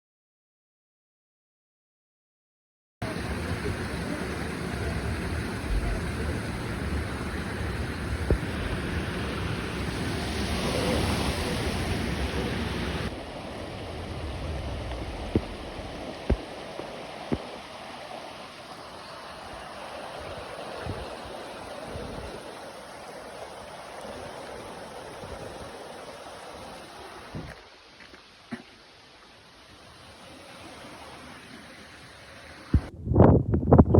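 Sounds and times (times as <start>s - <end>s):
river rushing: 3.0s - 32.9s.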